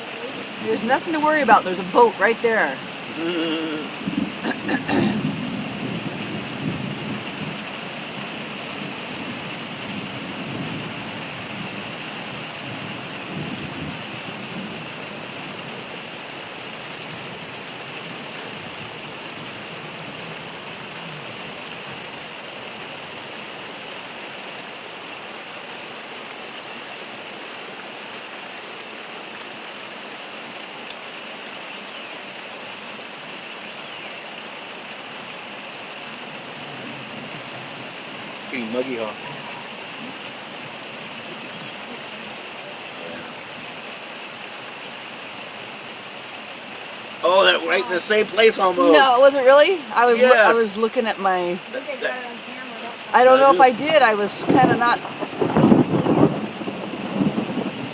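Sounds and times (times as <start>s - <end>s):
heavy rain falling: 0.0s - 57.9s
thunder rumble: 2.7s - 16.0s, 53.1s - 57.9s.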